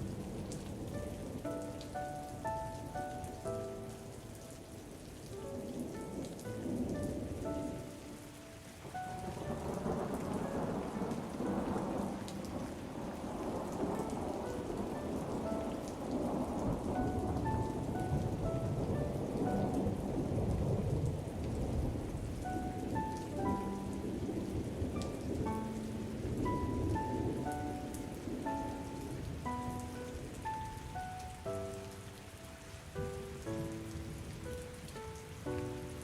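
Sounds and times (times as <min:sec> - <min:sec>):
steady rain: 0:00.0 - 0:36.0
rolling thunder: 0:08.9 - 0:30.9.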